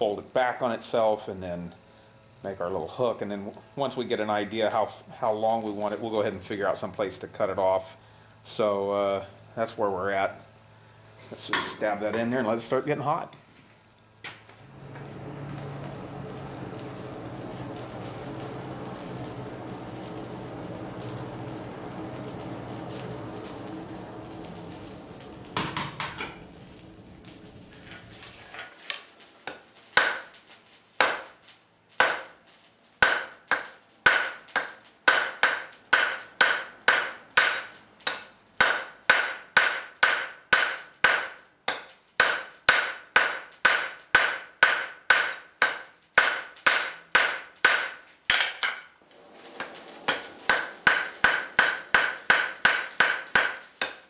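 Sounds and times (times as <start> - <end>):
hammer striking steel on anvil: 25.6 - 26.4, 28.9 - 31.4, 32.0 - 49.0, 49.6 - 54.0.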